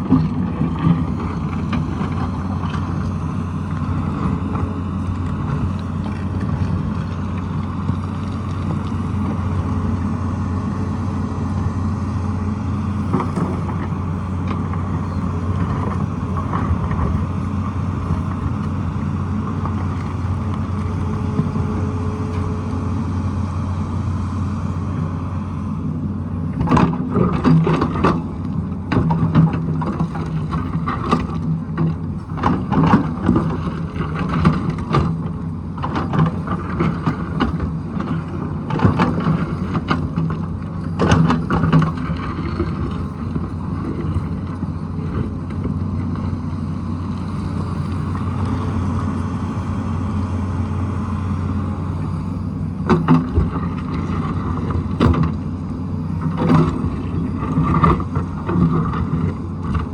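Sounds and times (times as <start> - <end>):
excavator diesel engine running: 0.0 - 59.9
rock and bucket clatter: 28.9 - 45.7.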